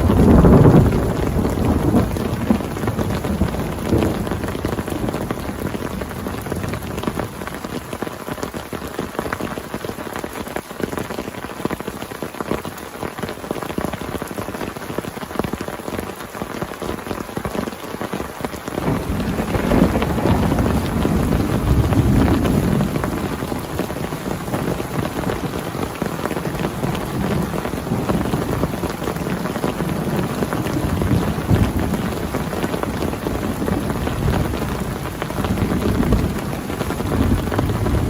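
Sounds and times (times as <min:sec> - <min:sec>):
heavy rain pattering: 0:00.0 - 0:38.0.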